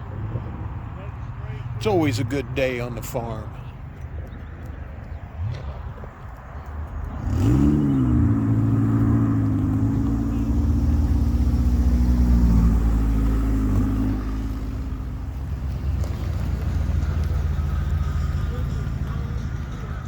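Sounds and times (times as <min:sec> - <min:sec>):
car engine revving and idling: 0:05.3 - 0:20.0.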